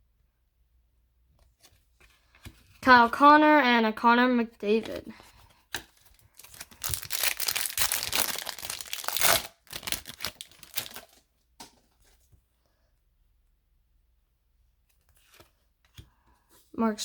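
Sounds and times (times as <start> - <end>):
wrapper tearing and crinkling: 6.2 - 11.2.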